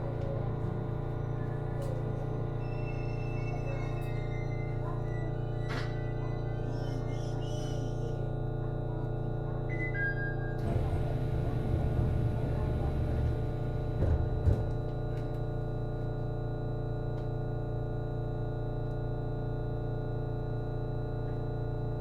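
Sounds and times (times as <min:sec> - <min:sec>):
railcar power equipment hum: 0:00.0 - 0:17.3.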